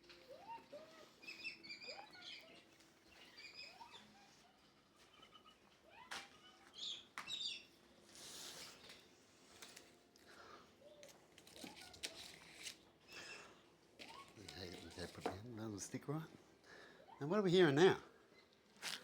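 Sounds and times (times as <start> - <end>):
small birds chirping: 0.2 - 9.1.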